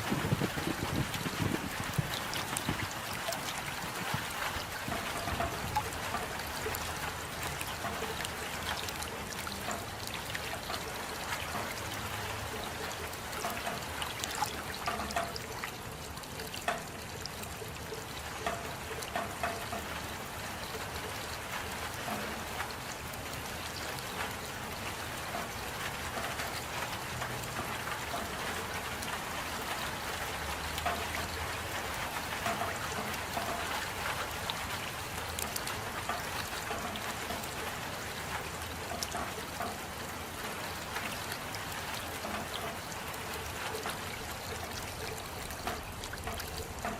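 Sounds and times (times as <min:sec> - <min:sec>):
drips ticking: 0:00.0 - 0:46.9
water trickling: 0:00.0 - 0:46.9.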